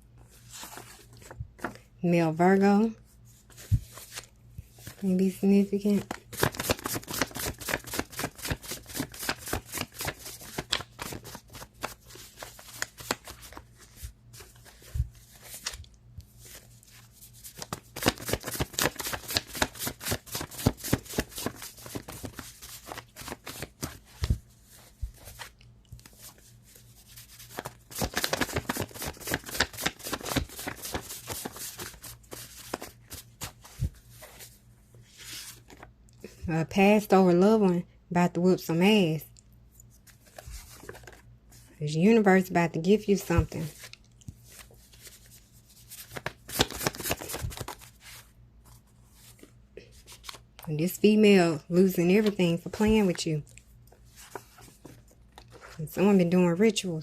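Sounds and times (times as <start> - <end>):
cards being shuffled: 5.8 - 34.5, 40.0 - 41.3, 43.4 - 50.5.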